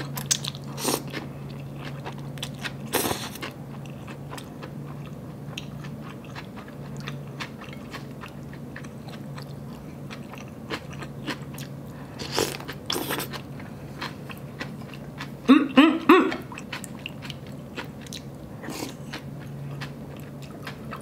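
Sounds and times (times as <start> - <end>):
person humming: 15.5 - 16.5
wet chewing and mouth clicks: 16.3 - 21.0.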